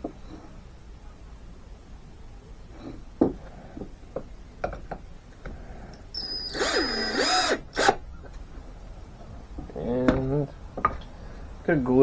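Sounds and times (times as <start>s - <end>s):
cordless drill motor whine: 6.1s - 8.0s
light handling knocks: 9.6s - 11.1s.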